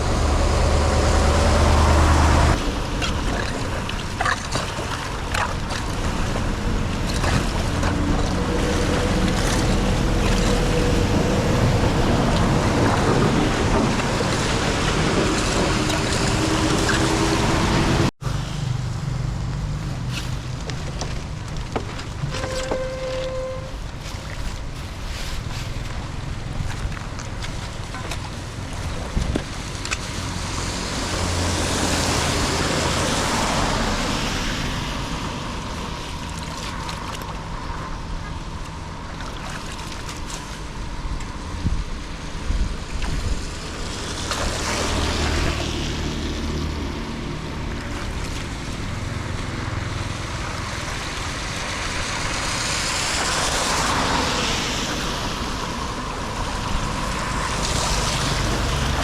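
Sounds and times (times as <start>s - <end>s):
wind on microphone: 0.0s - 18.1s, 40.2s - 59.0s
floodwater rushing and splashing: 0.0s - 59.0s.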